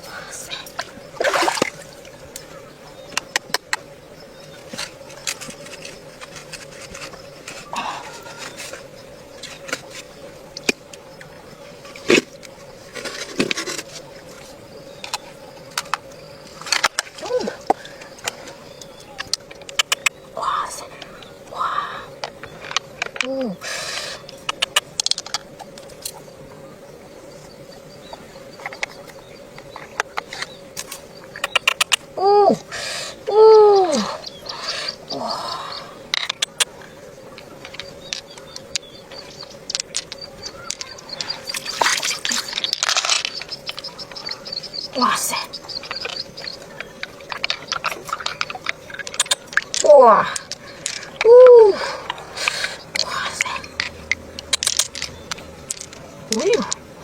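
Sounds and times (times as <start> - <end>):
faint steady hum: 0.0 - 57.0
scraping rustle: 4.5 - 10.8, 11.6 - 17.3.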